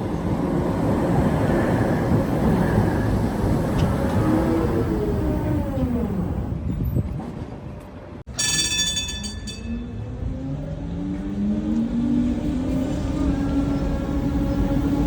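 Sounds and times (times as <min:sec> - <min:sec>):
tram motors whining: 0:00.0 - 0:06.6, 0:09.6 - 0:15.0.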